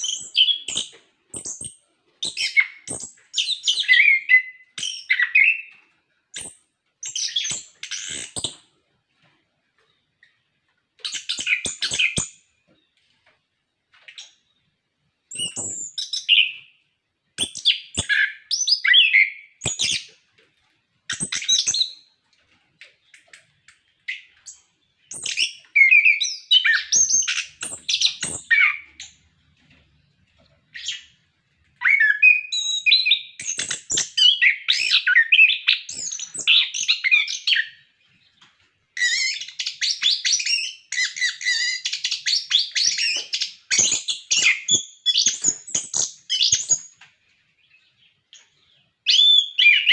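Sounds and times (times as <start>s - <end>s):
thrush singing warbles and whistles: 15.3s - 16.6s, 49.1s - 49.9s.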